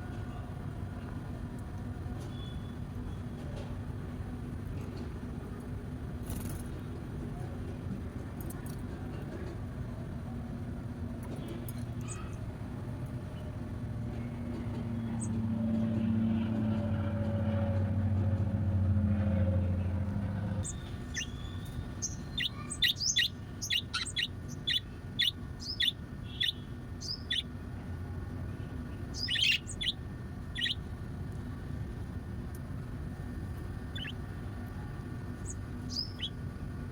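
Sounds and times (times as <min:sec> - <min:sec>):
low motor hum: 0:12.7 - 0:36.9
pet bird chirping: 0:20.6 - 0:27.6, 0:29.0 - 0:30.9, 0:33.7 - 0:34.2, 0:35.4 - 0:36.4.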